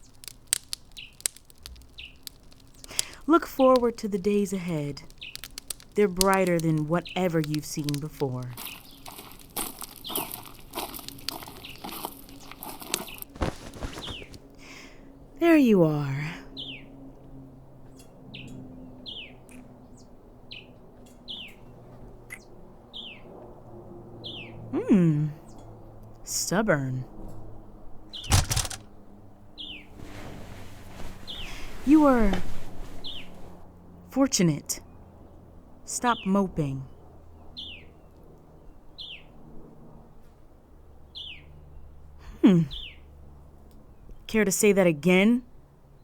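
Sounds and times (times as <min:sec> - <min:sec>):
bird chirping: 0:01.9 - 0:14.4, 0:33.0 - 0:33.4.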